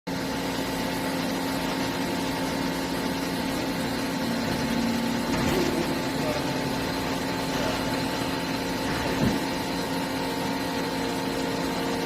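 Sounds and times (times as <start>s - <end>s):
boring mill machine hum: 0.1s - 12.0s.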